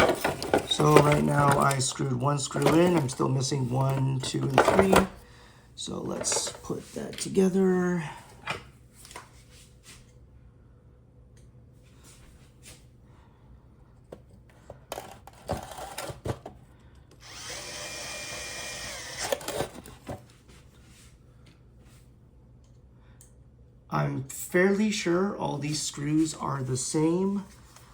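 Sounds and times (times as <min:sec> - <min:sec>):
power screwdriver running: 0:17.2 - 0:19.9.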